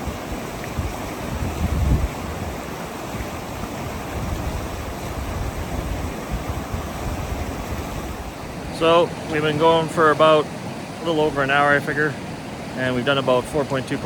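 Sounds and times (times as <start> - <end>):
wind rumble on microphone: 0.0 - 9.4
mountain creek rushing: 0.0 - 14.0.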